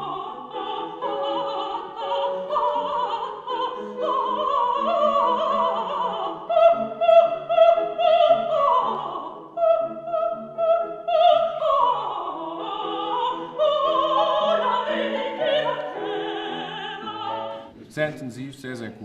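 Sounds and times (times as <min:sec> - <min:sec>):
classical accompaniment: 0:00.0 - 0:19.0
operatic singing with vibrato: 0:00.0 - 0:19.0.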